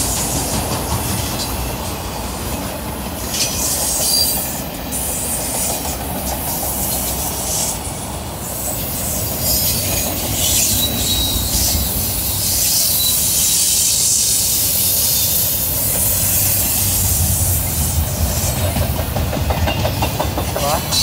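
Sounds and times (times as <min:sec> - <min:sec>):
steel wheels rumbling on rails: 0:00.0 - 0:21.0
strong high hiss: 0:03.6 - 0:19.4
faint thin squeal: 0:09.5 - 0:15.4.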